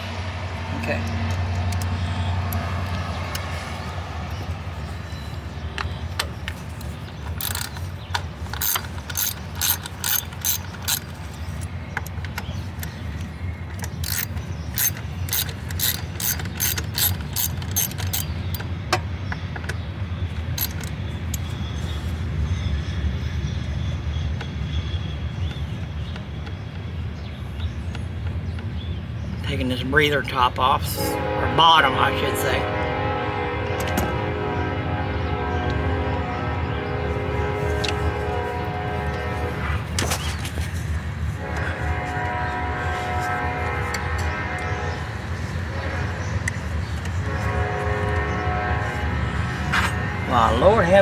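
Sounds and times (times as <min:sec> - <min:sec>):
ratchet wrench clicking: 0:05.8 - 0:18.8, 0:20.4 - 0:21.5.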